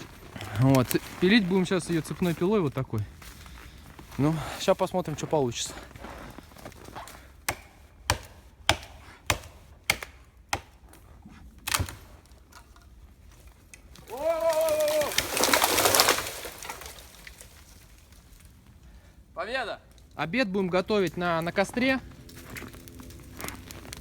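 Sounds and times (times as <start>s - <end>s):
tree creaking: 0.0s - 7.0s, 11.6s - 19.0s, 19.8s - 24.0s
wood cracking sharply: 11.6s - 13.0s, 13.6s - 18.6s
tree crashing down: 13.9s - 18.6s.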